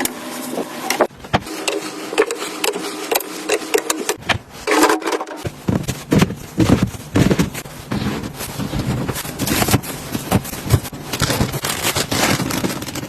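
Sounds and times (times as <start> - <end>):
boxes clacking and knocking: 3.5 - 13.0
packaging rustling: 4.4 - 13.0.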